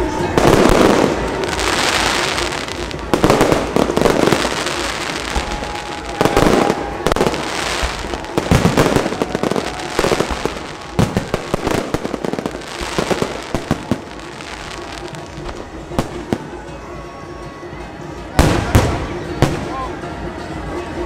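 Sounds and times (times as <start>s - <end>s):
fireworks crackling and banging: 0.0s - 16.6s.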